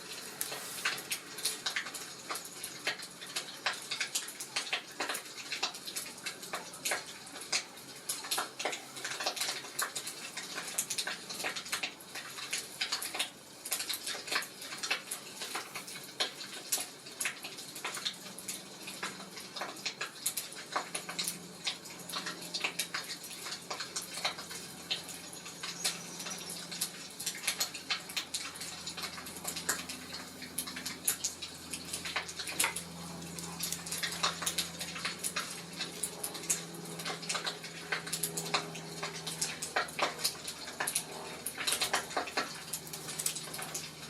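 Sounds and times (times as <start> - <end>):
soft rushing hiss: 0.0 - 1.5
wood fire crackling: 0.0 - 44.0.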